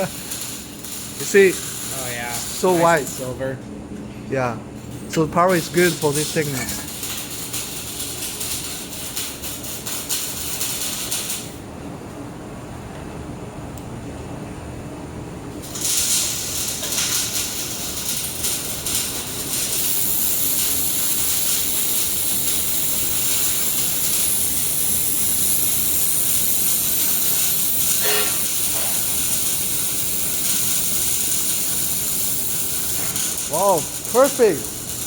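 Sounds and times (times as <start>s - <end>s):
gas hissing from welding torch: 0.0s - 3.3s, 15.6s - 35.0s
welding crackling: 0.0s - 3.3s, 4.8s - 11.6s, 15.6s - 35.0s.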